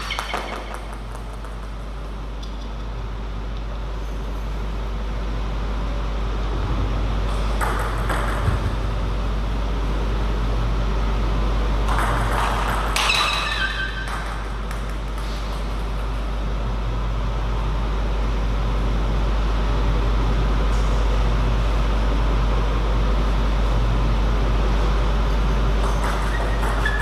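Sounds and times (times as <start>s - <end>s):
table tennis play noise: 0.0s - 2.9s, 7.2s - 10.2s, 11.3s - 16.6s, 25.6s - 27.0s
low hum: 0.0s - 27.0s.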